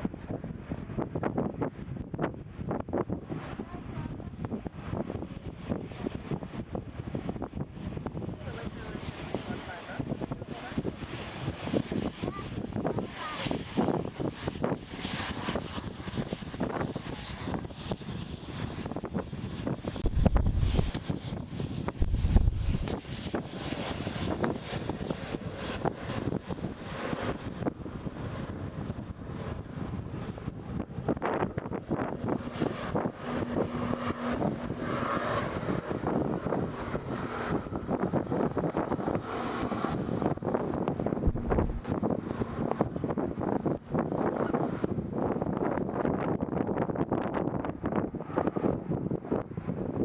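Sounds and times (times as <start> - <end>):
wind buffeting microphone: 0.0 - 50.0
jet engines running: 14.2 - 45.7
heavy low rumble: 20.0 - 21.1, 21.9 - 23.0, 41.0 - 43.0.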